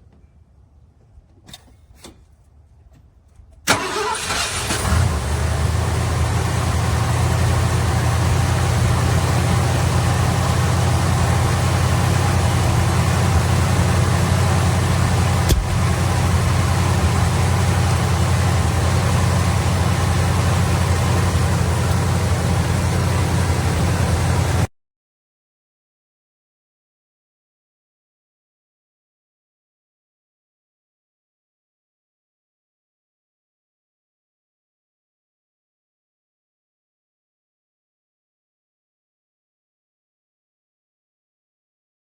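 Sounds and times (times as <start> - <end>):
car engine cranking: 3.6 - 6.3, 10.8 - 24.7
car engine idling: 3.7 - 24.7.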